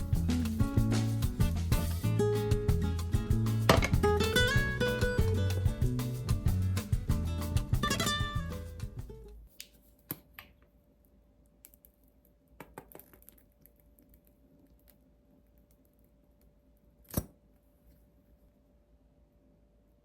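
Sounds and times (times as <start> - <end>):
sharp knock: 3.7 - 4.0.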